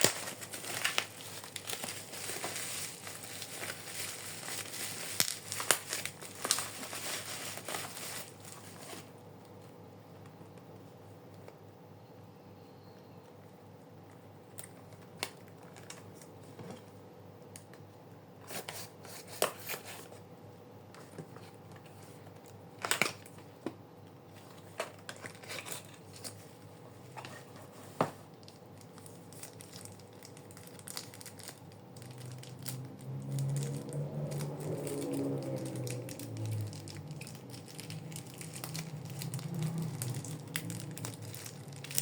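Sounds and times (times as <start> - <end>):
packaging clicks: 0.0 - 8.4
packaging crinkling and tearing: 0.0 - 9.2, 24.4 - 26.7, 28.3 - 42.0
faint steady hum: 0.0 - 42.0.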